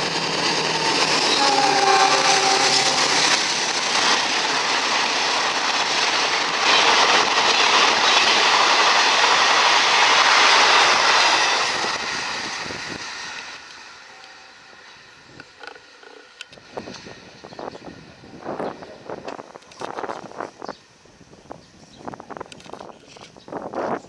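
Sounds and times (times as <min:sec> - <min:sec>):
train wheels clattering: 0:00.0 - 0:13.8.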